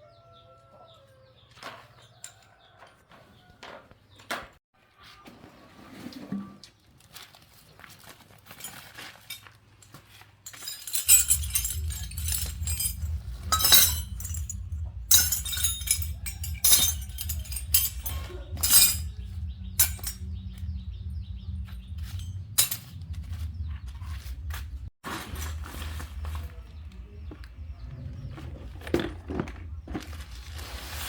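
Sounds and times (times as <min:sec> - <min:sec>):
sharp metallic clinks and knocks: 0:10.4 - 0:23.6.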